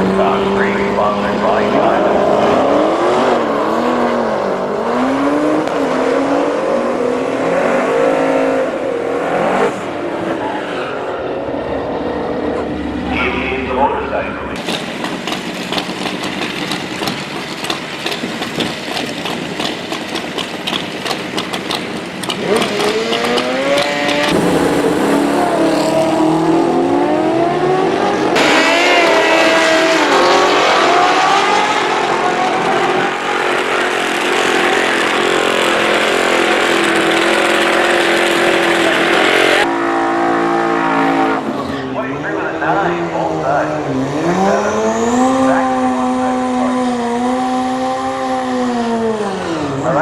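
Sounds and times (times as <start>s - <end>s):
racing engines revving hard: 0.0s - 50.0s
rapid pulsing engine: 13.7s - 26.3s.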